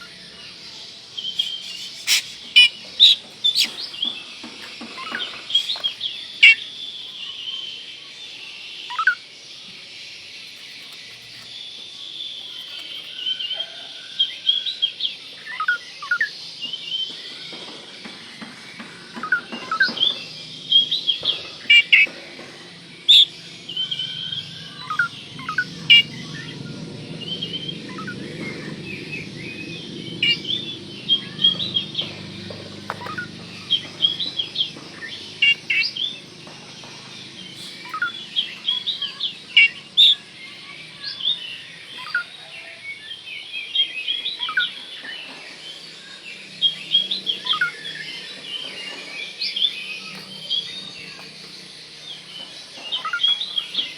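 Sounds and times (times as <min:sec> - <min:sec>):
low background hum: 0:00.0 - 0:07.3, 0:15.1 - 0:53.9
bird chirping and whistling: 0:01.2 - 0:04.2, 0:05.0 - 0:06.7, 0:19.2 - 0:22.1, 0:23.1 - 0:26.6, 0:27.3 - 0:32.1, 0:32.8 - 0:36.2, 0:37.6 - 0:40.2.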